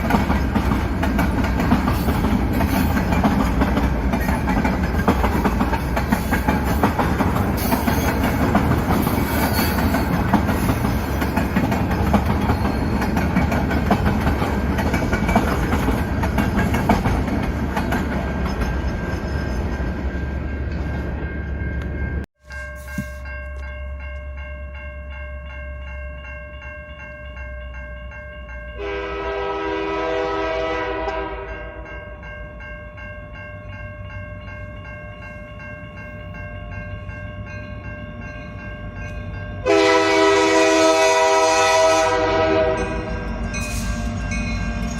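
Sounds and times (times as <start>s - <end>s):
train wheel clatter: 0.0s - 22.0s
freight train rumbling past: 0.0s - 22.3s, 27.5s - 44.9s
locomotive horn: 28.8s - 31.8s, 39.6s - 43.3s.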